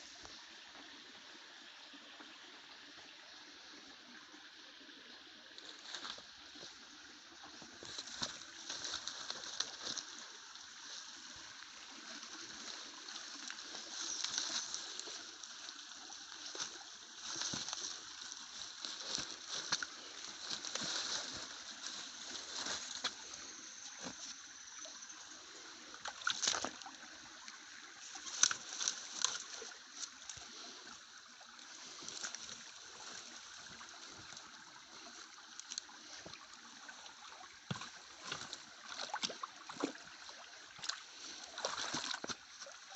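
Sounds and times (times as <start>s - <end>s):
stream water trickling: 0.0s - 42.9s
small splashes and clicks: 5.6s - 6.7s, 7.4s - 23.3s, 25.9s - 42.9s.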